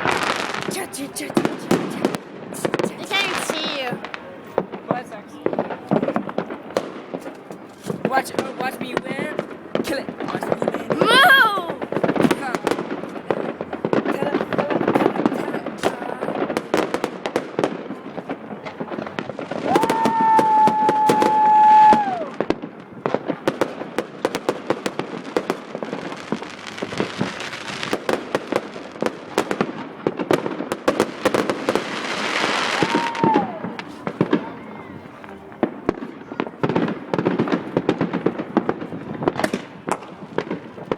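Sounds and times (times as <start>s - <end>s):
fireworks popping and cracking: 0.0s - 40.9s
firework whistle: 19.5s - 22.5s, 31.9s - 35.0s.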